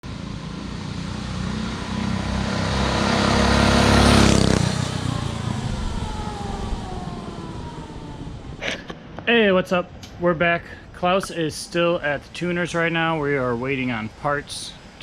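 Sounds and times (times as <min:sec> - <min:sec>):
mini bike engine passing by: 0:00.2 - 0:08.2.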